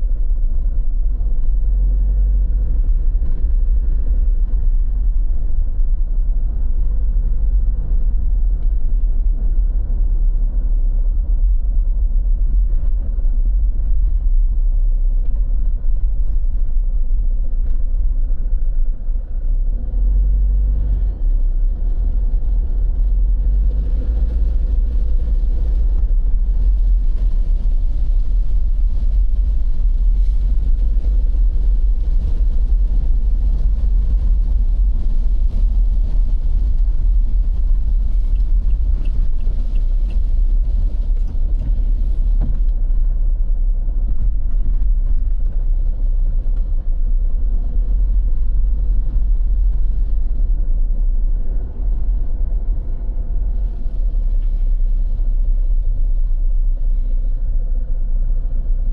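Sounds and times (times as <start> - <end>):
steady low rumble: 0.0 - 58.9.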